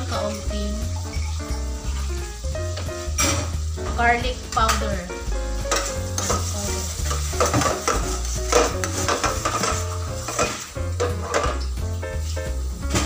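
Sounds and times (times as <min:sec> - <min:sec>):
background music: 0:00.0 - 0:13.0
sauce bubbling and sizzling: 0:00.0 - 0:13.0
spatula scraping a steel pan: 0:05.7 - 0:11.6.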